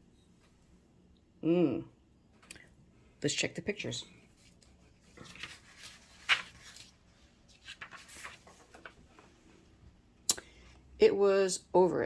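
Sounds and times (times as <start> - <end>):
soft handling rustles: 4.1 - 9.9.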